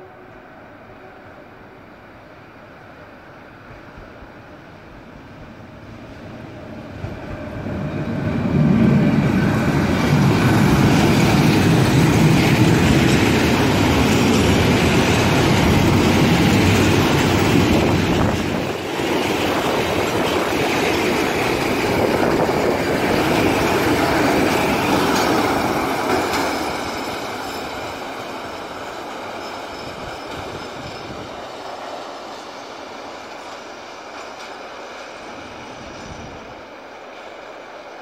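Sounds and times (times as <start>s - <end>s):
freight wagons rumbling past: 6.5s - 32.2s
wheels clacking over rail joints: 8.6s - 35.6s.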